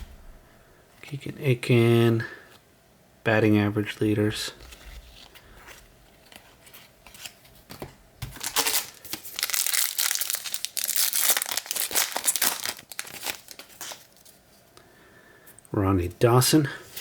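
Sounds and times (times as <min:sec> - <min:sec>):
foil wrapper tearing and crinkling: 0:08.4 - 0:14.2.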